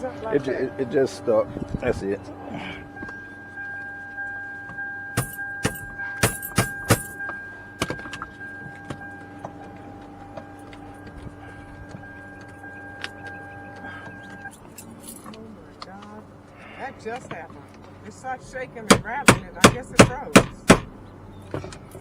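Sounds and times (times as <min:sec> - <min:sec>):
steady high tone: 0:00.0 - 0:17.6.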